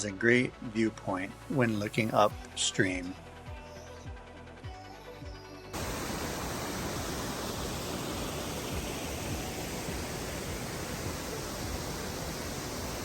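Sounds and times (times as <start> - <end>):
waterfall crashing: 5.8 - 13.0.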